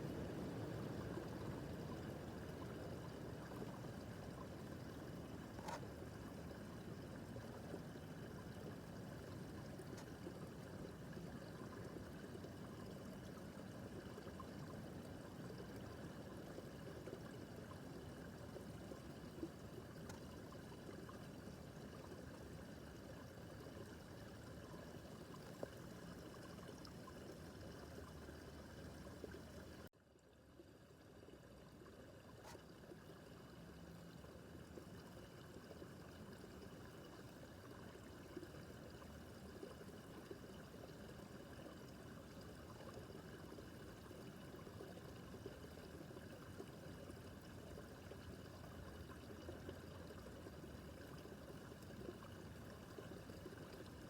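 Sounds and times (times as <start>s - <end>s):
brook babbling over stones: 0.0s - 54.0s.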